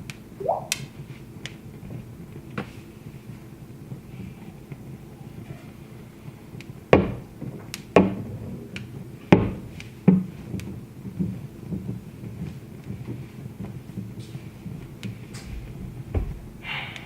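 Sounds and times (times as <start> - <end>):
wood fire crackling: 0.0 - 17.0
loud sharp pops: 6.4 - 15.8.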